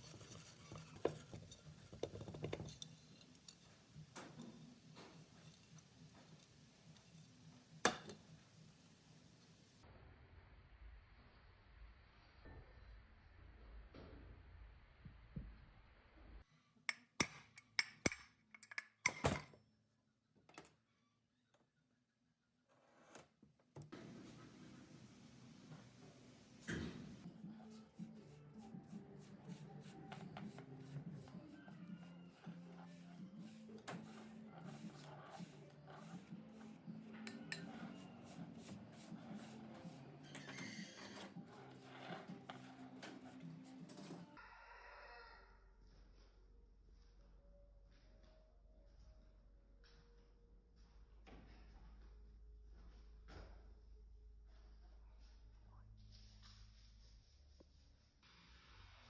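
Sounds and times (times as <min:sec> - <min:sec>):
metal tools clinking: 0:00.0 - 0:05.9
clicks and scraping on metal parts: 0:00.0 - 0:08.2, 0:27.6 - 0:44.3
quiet background music: 0:00.0 - 0:23.1, 0:23.9 - 0:59.0.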